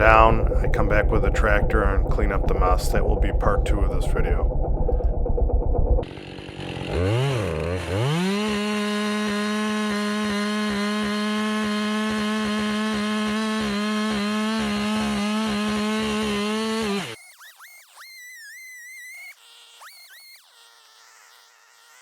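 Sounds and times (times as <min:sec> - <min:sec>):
chainsaw cutting wood: 0:06.0 - 0:22.0.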